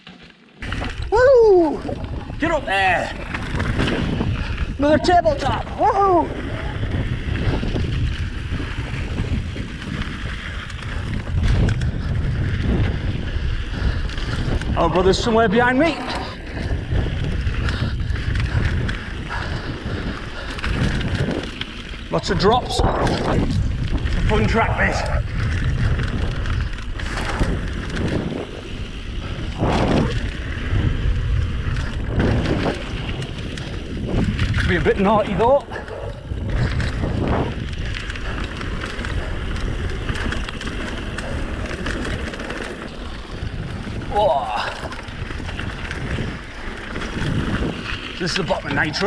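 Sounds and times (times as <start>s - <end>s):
bike rattling: 0.0s - 49.0s
bike tyres rumbling on dirt: 0.0s - 49.0s
wind buffeting microphone: 0.6s - 49.0s
bike knocks and rattles: 35.4s - 48.2s.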